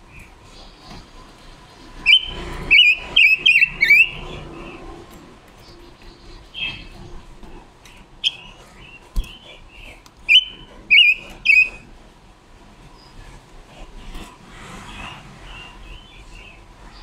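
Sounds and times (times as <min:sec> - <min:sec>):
bird calling: 0:02.0 - 0:04.9, 0:05.6 - 0:07.2, 0:08.2 - 0:11.9.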